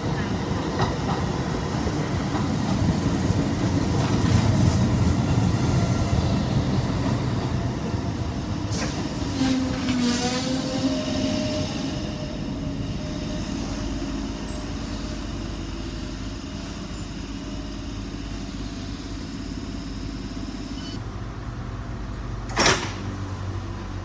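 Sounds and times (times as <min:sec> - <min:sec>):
train rail rumble: 0:00.0 - 0:24.0.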